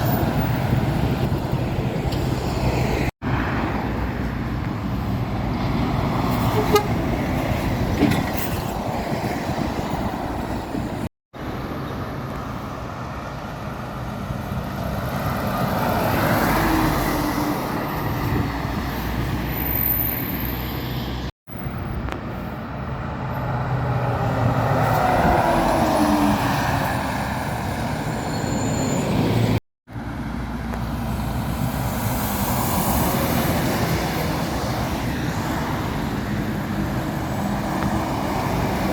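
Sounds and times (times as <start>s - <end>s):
lorries passing: 0.0s - 38.9s
horn tooting: 6.5s - 7.0s.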